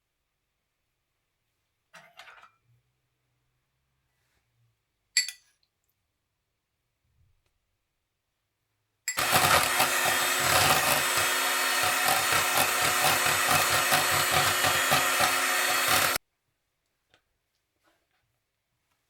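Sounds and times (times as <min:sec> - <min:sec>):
blender motor pulsing: 0:09.2 - 0:16.2.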